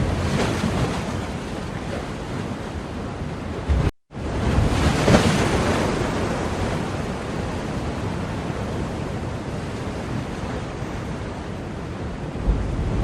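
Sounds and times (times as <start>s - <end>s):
rushing wash of surf: 3.5s - 13.0s.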